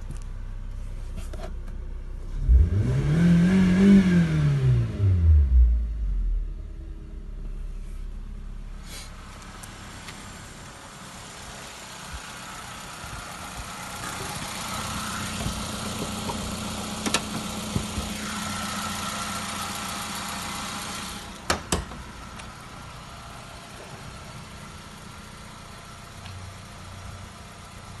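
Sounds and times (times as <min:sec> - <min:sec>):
car engine idling: 0:00.0 - 0:02.7, 0:05.7 - 0:28.0.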